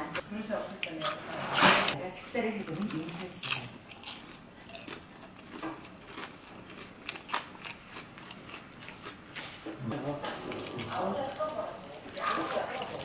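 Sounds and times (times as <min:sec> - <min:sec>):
person chewing crispy chicken: 0:02.8 - 0:10.9.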